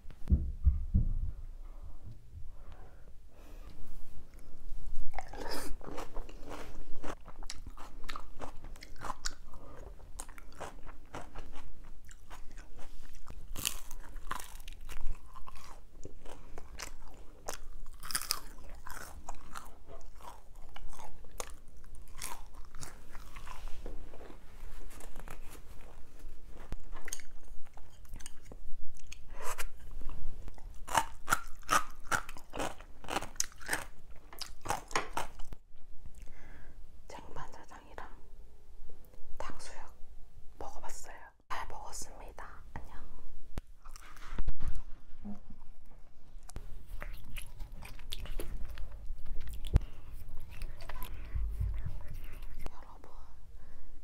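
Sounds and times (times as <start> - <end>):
person crunching food: 5.1 - 23.8, 30.5 - 35.6, 47.0 - 51.2.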